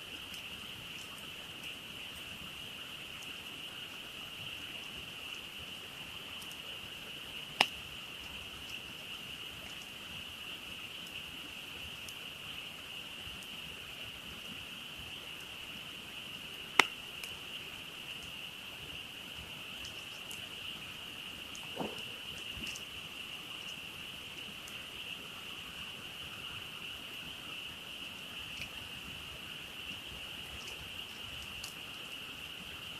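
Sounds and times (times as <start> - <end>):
frogs chorusing: 0.0 - 32.9
campfire wood popping: 5.3 - 12.2, 16.3 - 24.9, 29.9 - 31.9.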